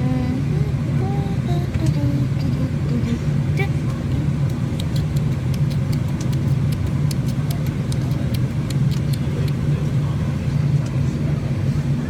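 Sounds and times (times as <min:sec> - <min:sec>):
airliner cabin hum: 0:00.0 - 0:12.0.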